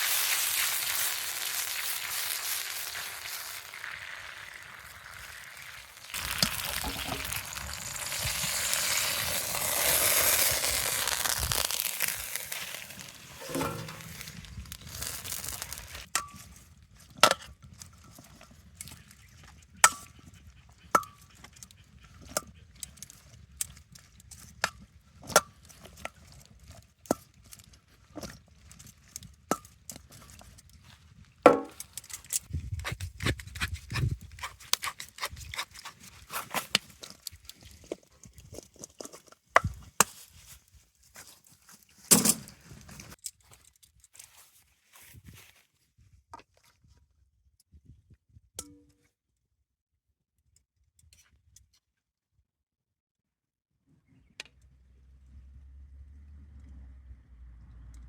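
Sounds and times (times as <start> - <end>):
cooking hiss: 0.0 - 16.1.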